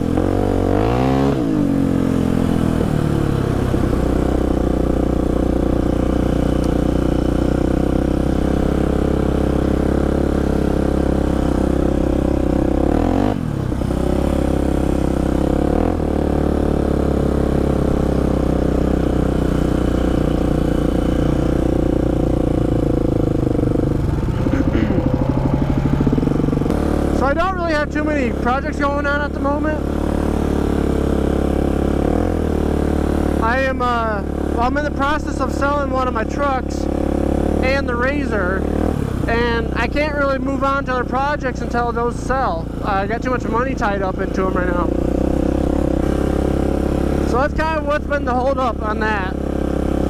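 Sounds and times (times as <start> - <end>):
atv engine running: 0.0 - 50.0.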